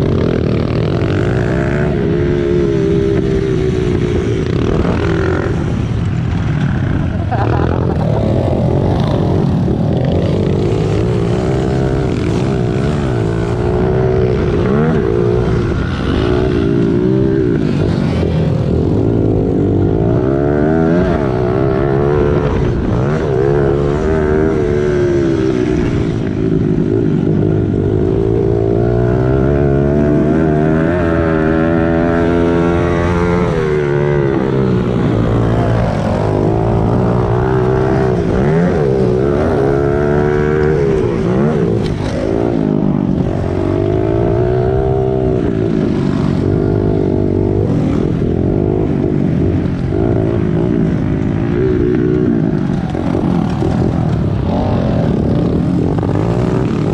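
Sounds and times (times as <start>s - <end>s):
pit bike engine revving: 0.0s - 56.9s.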